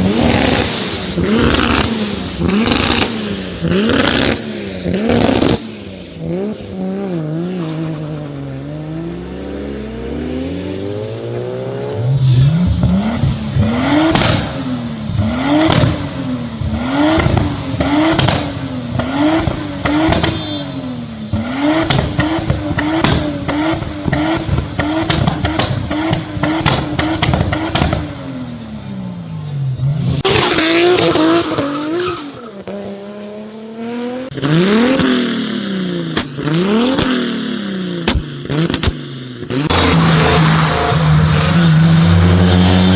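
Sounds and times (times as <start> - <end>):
car engine revving: 0.0 - 42.9
exhaust pops and bangs: 12.6 - 20.6, 21.3 - 28.3, 38.0 - 39.0.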